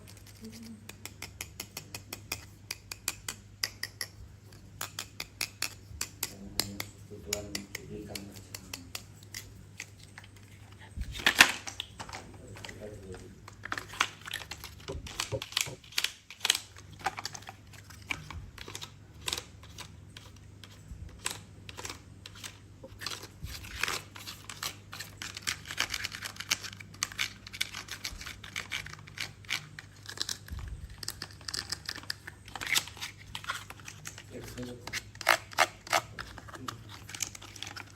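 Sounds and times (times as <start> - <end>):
plastic toys clicking and tapping: 0.0 - 10.5, 11.2 - 37.9
packaging crinkling: 21.2 - 37.9.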